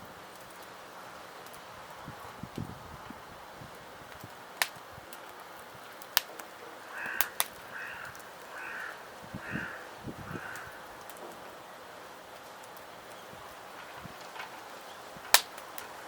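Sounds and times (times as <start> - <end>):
crow cawing: 6.9 - 10.9.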